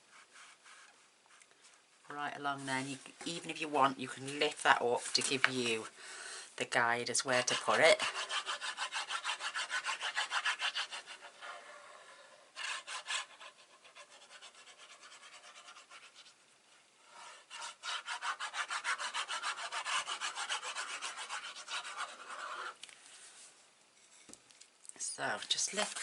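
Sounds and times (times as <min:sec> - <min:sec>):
paper being rubbed: 0:00.0 - 0:01.4, 0:07.3 - 0:16.3, 0:17.1 - 0:22.8, 0:25.5 - 0:26.0.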